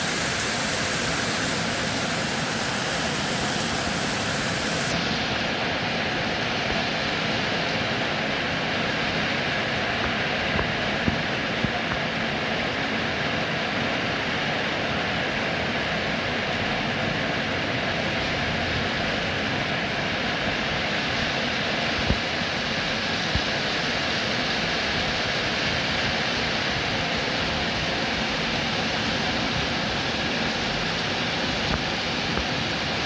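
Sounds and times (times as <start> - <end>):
heavy rain: 0.0 - 7.7.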